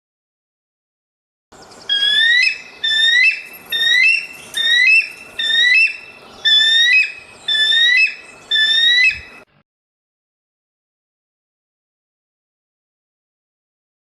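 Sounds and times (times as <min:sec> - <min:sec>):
bird whistling rising phrase: 0:01.9 - 0:09.4.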